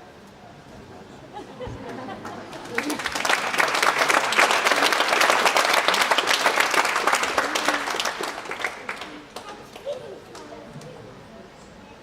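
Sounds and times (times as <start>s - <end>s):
voices in crowd: 0.0s - 12.0s
audience applauding: 1.8s - 10.5s.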